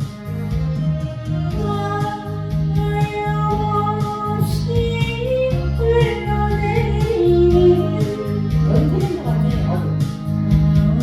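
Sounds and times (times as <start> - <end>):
guitar: 0.0 - 11.0
steady bass beat: 0.0 - 11.0
woman singing: 1.5 - 10.0.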